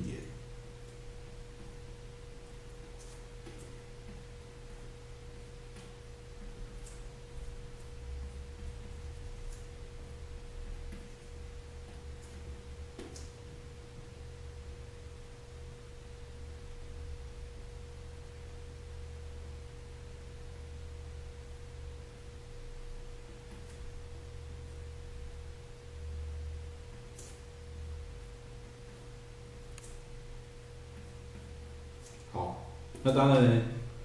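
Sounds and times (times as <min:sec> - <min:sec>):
steady pure tone: 0:00.0 - 0:02.8.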